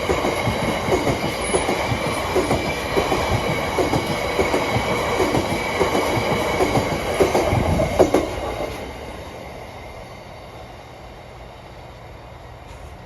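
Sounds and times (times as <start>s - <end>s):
freight train wagons rolling: 0.0s - 8.9s.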